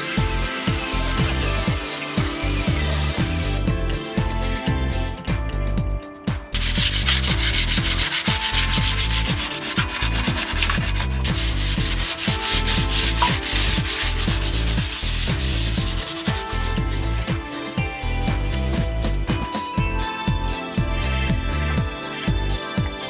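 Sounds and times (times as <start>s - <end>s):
music with steady beat: 0.0s - 23.0s
sanding disc on steel: 6.6s - 17.1s.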